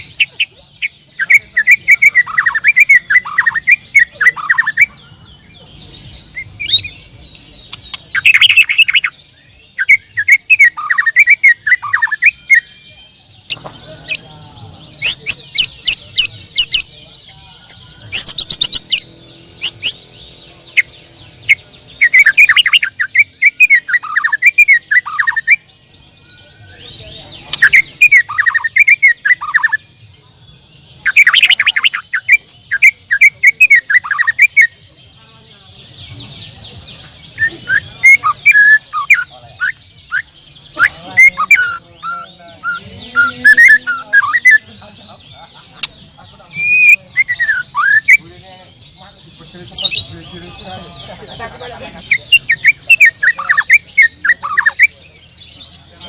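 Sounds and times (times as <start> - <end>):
birds singing whistled phrases: 0.0 - 56.0.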